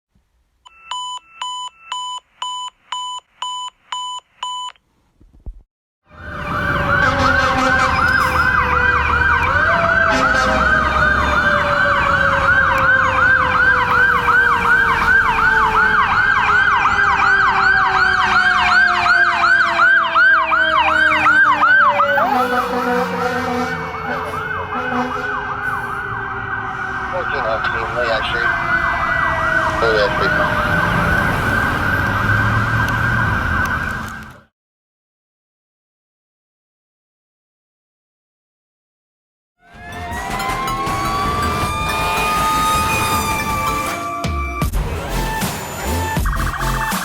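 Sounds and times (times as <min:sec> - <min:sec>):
lower falling siren tone: 0:06.1 - 0:34.3, 0:39.6 - 0:47.0
fire engine siren yelping: 0:06.1 - 0:34.5, 0:39.6 - 0:47.0
truck engine rumble: 0:39.6 - 0:47.0.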